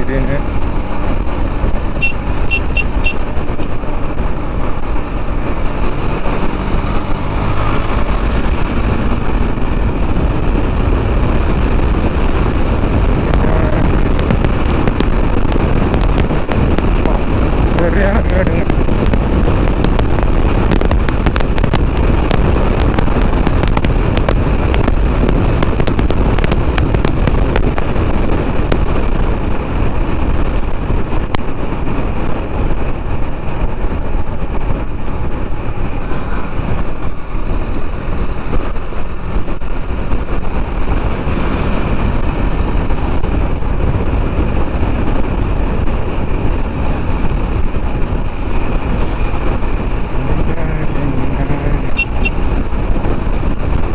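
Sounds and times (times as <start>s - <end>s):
motorcycle engine and road noise: 0.0s - 53.9s
wind rushing over microphone: 0.0s - 53.9s
sharp crackles and knocks: 14.0s - 17.7s, 18.7s - 29.1s.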